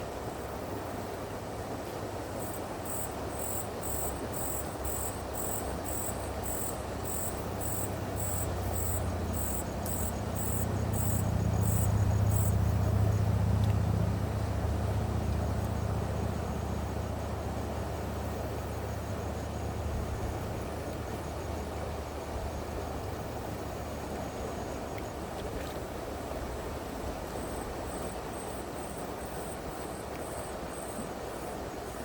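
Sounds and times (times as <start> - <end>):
insect calling in high pulses: 2.9 - 12.8
steady low rumble: 4.8 - 21.1.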